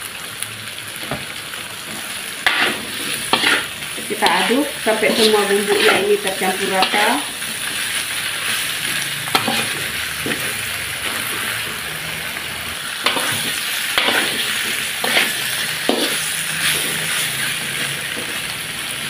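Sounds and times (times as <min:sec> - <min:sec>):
food sizzling in a wok: 0:00.0 - 0:19.0
metal spatula scraping wok: 0:02.4 - 0:12.4, 0:13.0 - 0:18.6.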